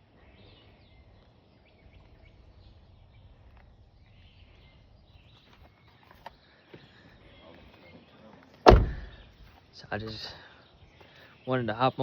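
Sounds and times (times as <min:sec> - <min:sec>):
birds chirping: 0:00.0 - 0:12.0
low rumble: 0:00.2 - 0:05.9.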